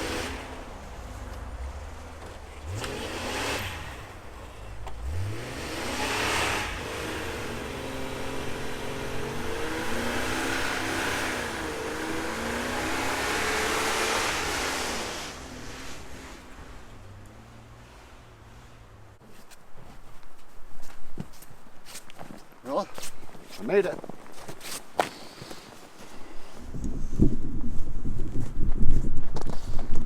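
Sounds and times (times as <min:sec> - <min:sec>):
car engine revving under load: 0:00.0 - 0:19.2.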